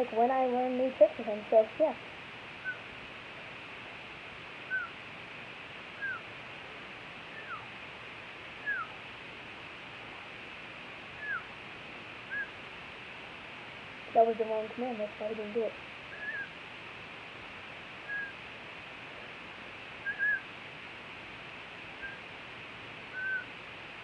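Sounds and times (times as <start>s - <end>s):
steady background hiss: 0.0s - 24.0s
parakeet chirps: 4.7s - 5.0s, 6.0s - 6.2s, 7.3s - 7.7s, 8.6s - 9.0s, 11.2s - 11.5s, 16.1s - 16.5s, 18.0s - 18.4s, 20.1s - 20.4s, 22.0s - 22.2s, 23.1s - 23.5s.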